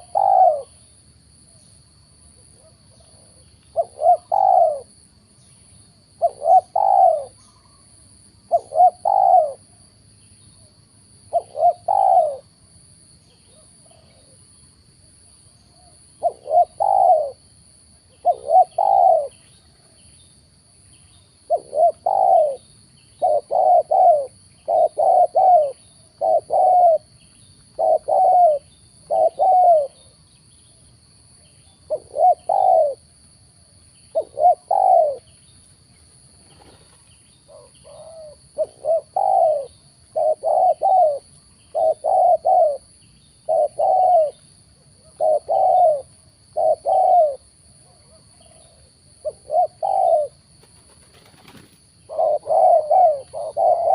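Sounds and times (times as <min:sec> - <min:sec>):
dove cooing: 0:00.0 - 0:00.8, 0:02.4 - 0:05.0, 0:06.2 - 0:09.8, 0:11.3 - 0:12.5, 0:15.7 - 0:17.4, 0:18.1 - 0:19.5, 0:21.4 - 0:27.1, 0:27.7 - 0:30.1, 0:31.9 - 0:33.0, 0:34.1 - 0:35.3, 0:36.4 - 0:53.9.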